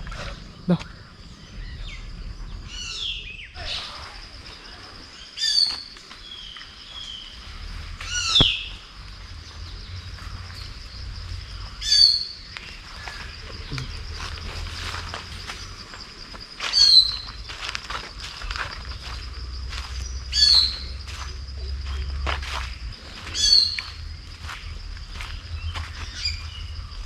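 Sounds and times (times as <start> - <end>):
bird calls sweeping down: 8.1 - 8.8.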